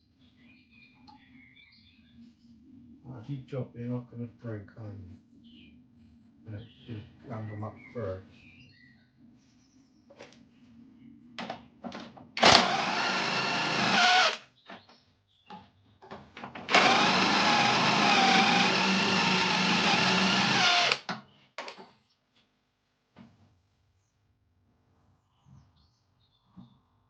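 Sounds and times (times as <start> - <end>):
handheld power tool running: 12.4 - 14.4, 16.7 - 21.1.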